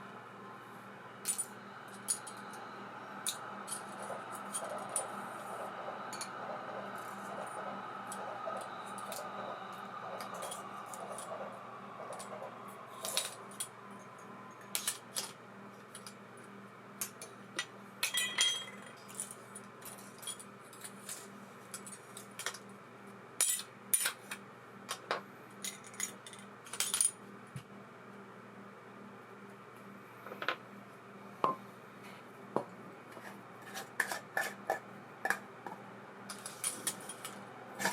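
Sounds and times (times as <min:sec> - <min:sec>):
fishing reel spinning whir: 0:01.3 - 0:15.4.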